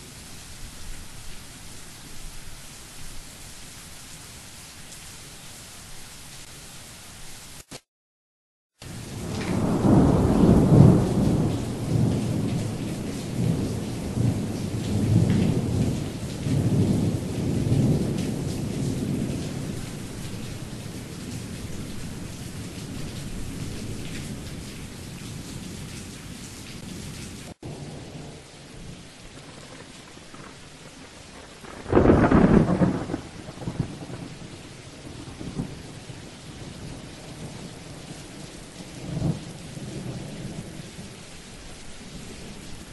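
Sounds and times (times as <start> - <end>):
steady rain: 0.0 - 7.8, 8.8 - 42.9
thunder rolling: 9.1 - 15.9, 31.3 - 34.4.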